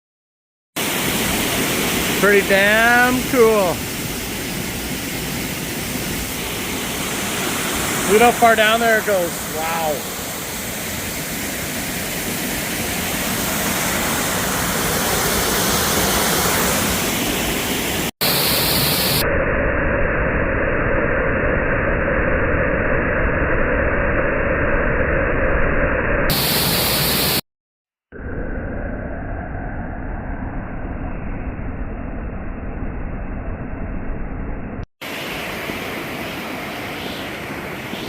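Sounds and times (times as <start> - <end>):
waterfall roaring: 0.8 - 19.2.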